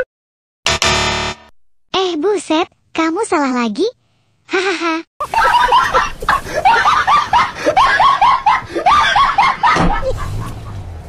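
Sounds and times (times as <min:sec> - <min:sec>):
high-pitched laughter: 0:04.5 - 0:10.8.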